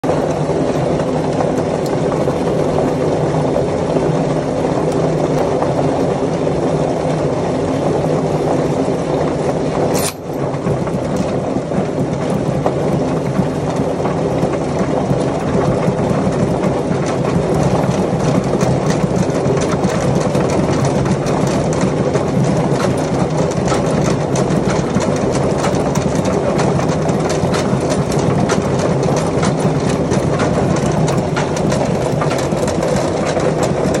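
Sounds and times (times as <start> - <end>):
washing machine mechanical drone: 0.0 - 34.0
sharp click: 10.0 - 10.4.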